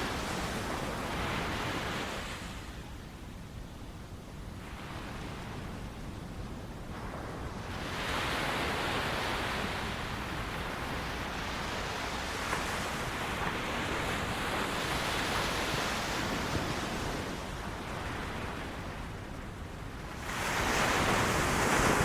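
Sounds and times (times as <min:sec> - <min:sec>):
ocean surf breaking on beach: 0:07.0 - 0:22.0.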